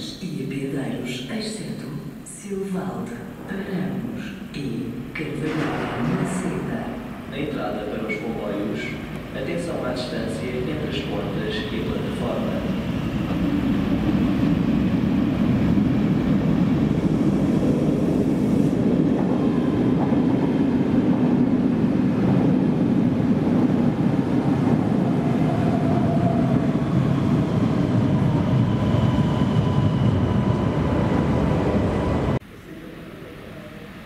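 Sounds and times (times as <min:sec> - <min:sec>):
faint train whines: 0:01.0 - 0:22.7, 0:23.7 - 0:34.0
train wheels rumbling on rails: 0:05.2 - 0:32.4.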